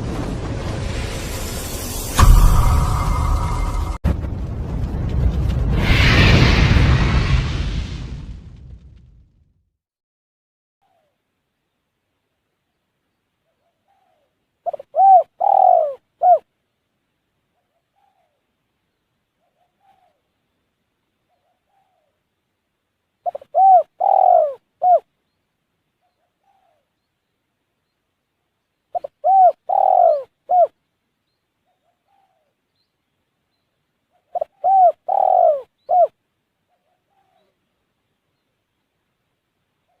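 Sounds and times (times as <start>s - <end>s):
dove cooing: 13.9s - 16.4s, 23.3s - 25.0s, 29.0s - 30.7s, 34.3s - 36.2s.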